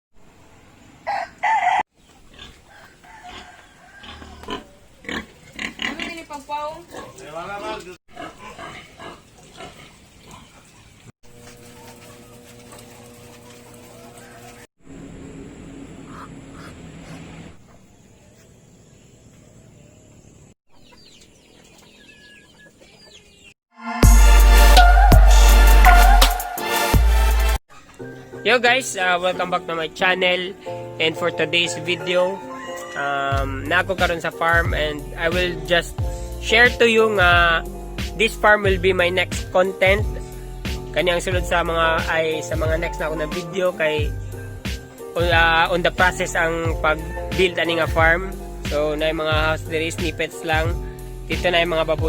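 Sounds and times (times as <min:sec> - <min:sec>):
farm animals calling: 0:00.4 - 0:11.0, 0:11.6 - 0:14.7, 0:15.9 - 0:19.0, 0:20.7 - 0:23.5, 0:27.7 - 0:35.9, 0:41.0 - 0:44.1, 0:45.2 - 0:50.7
chickens clucking: 0:00.4 - 0:14.7, 0:15.9 - 0:18.6, 0:20.7 - 0:23.6, 0:27.7 - 0:28.2
rooster crowing: 0:01.0 - 0:01.9, 0:02.6 - 0:04.9, 0:13.8 - 0:14.6, 0:32.0 - 0:33.0
loud electronic music: 0:24.0 - 0:27.6, 0:33.4 - 0:52.0.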